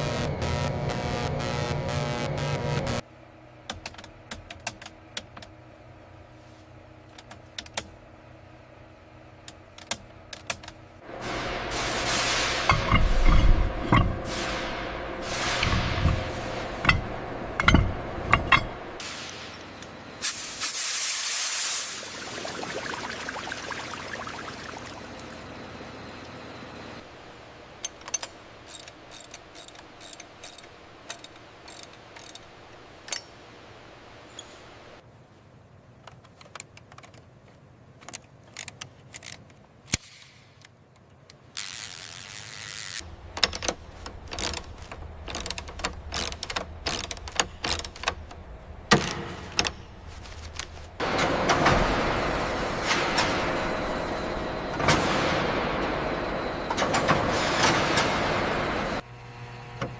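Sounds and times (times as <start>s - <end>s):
low steady hum: 0.0s - 20.5s, 21.8s - 57.2s
hiss: 20.2s - 22.3s
ratchet clicks and ticks: 27.9s - 32.5s, 41.6s - 48.3s.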